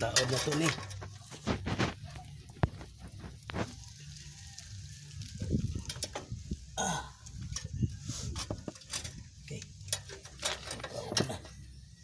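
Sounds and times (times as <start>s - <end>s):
metal parts and tools handled: 0.0s - 1.8s, 7.4s - 11.6s.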